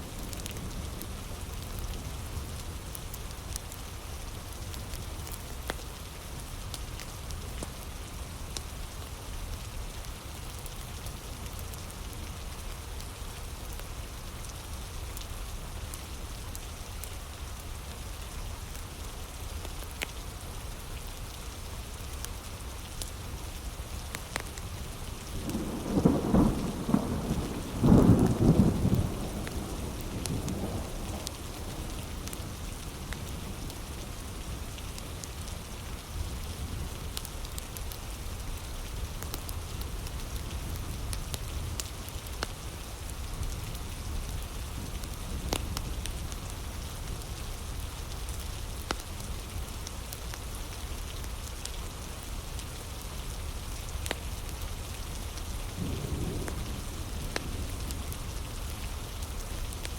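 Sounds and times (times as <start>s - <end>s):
heavy rain falling: 0.0s - 59.9s
wood fire crackling: 22.0s - 59.9s.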